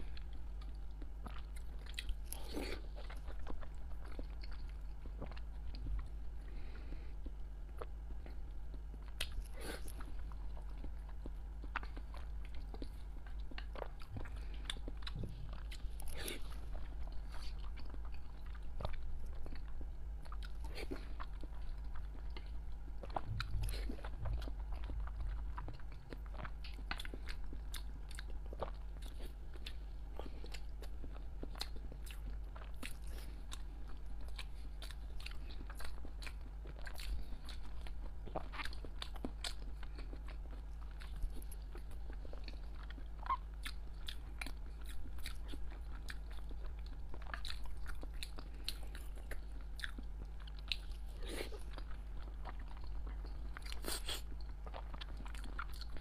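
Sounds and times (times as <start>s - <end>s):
person chewing and biting eggs: 0.0s - 56.0s.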